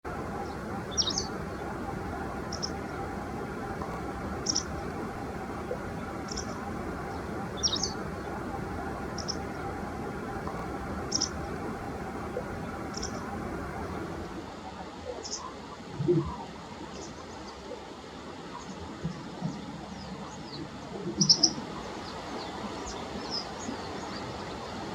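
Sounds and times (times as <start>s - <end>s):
steady background noise: 0.0s - 24.9s
wagtail two-note calls: 0.4s - 2.9s, 3.8s - 4.9s, 5.6s - 9.6s, 10.5s - 11.4s.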